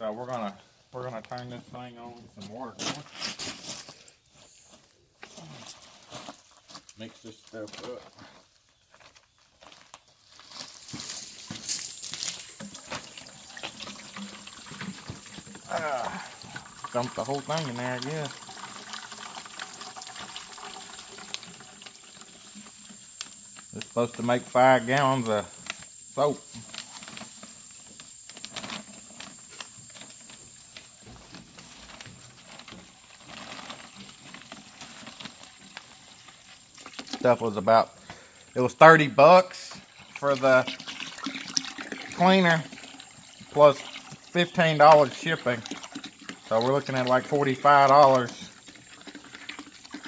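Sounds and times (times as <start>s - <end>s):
water splashing into plastic bucket: 10.9s - 38.3s, 39.5s - 50.0s.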